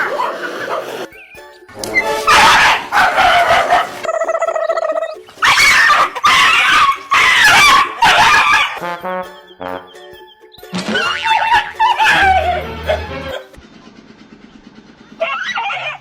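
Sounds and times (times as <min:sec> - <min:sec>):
dog howling: 0:01.9 - 0:08.8, 0:11.0 - 0:13.5, 0:15.2 - 0:16.0.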